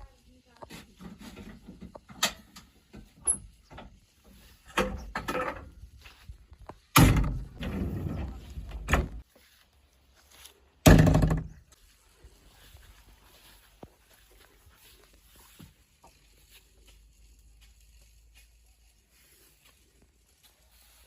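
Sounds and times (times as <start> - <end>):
heavy thuds and bangs: 7.0 - 9.2, 10.9 - 11.6.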